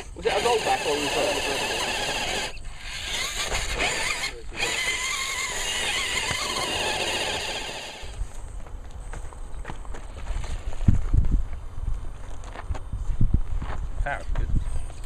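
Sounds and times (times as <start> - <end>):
electric motor and gears whining: 0.0 - 8.4.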